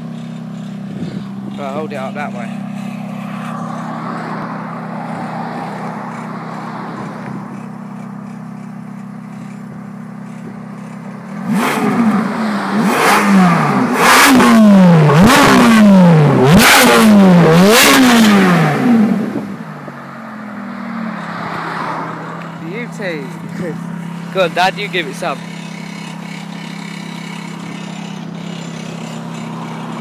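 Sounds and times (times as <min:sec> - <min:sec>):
car engine idling: 0:00.0 - 0:30.0
car engine revving hard: 0:10.4 - 0:19.6, 0:20.9 - 0:30.0.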